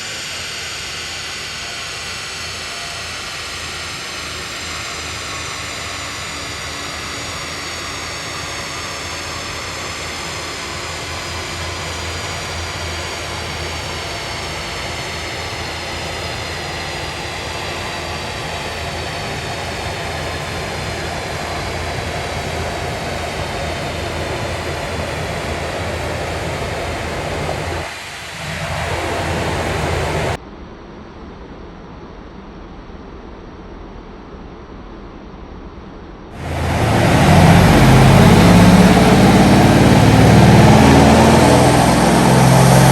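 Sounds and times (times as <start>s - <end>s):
car engine revving under load: 11.1s - 30.4s, 36.4s - 42.9s.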